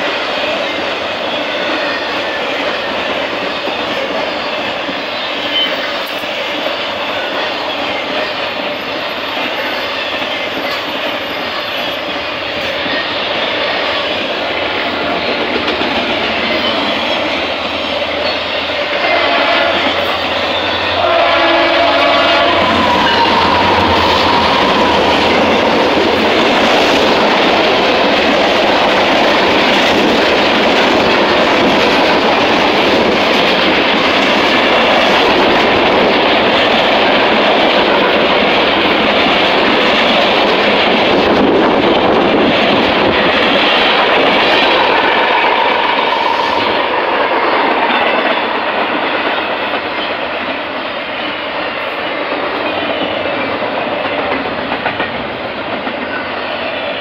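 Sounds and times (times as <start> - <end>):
train horn: 18.3 - 26.4.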